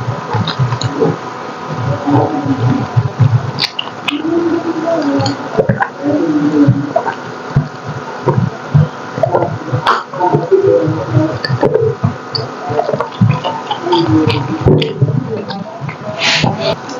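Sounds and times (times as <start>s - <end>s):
sharp mouth clicks: 2.6s - 4.2s, 11.1s - 16.9s
wet chewing and lip smacking: 2.6s - 4.2s.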